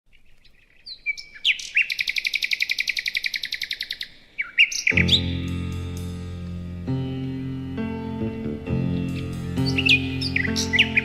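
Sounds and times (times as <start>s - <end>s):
songbird singing: 0.1s - 11.0s
music with sustained chords: 4.9s - 11.0s.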